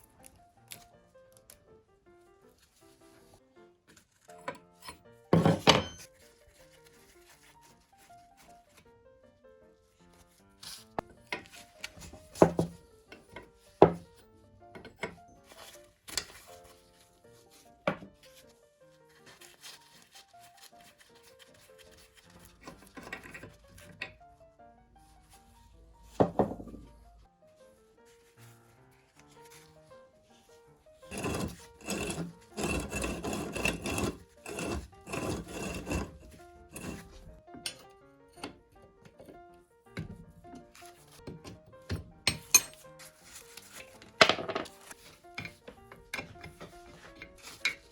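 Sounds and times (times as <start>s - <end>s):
soft background music: 0.0s - 47.9s
hand tool knocks and scrapes: 4.4s - 6.1s, 11.0s - 16.5s, 17.9s - 18.2s, 22.5s - 24.2s, 26.2s - 26.9s, 31.1s - 39.4s, 43.7s - 47.9s
abrasive rubbing on metal: 31.1s - 37.2s.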